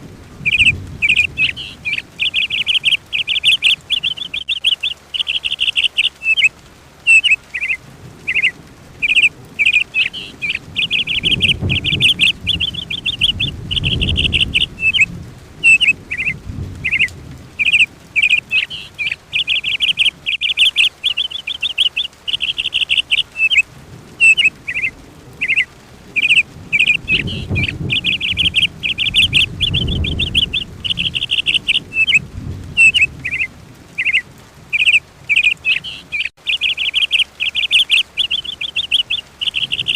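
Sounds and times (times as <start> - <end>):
songbird trilling: 0.4 - 6.5, 7.1 - 23.6, 24.2 - 32.2, 32.8 - 39.9
low rumble: 8.0 - 18.2, 24.0 - 33.9.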